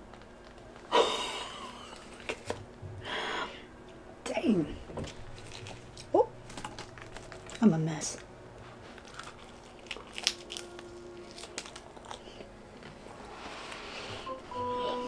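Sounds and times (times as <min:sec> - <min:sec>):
chewing crispy pizza crust: 0:05.2 - 0:13.9.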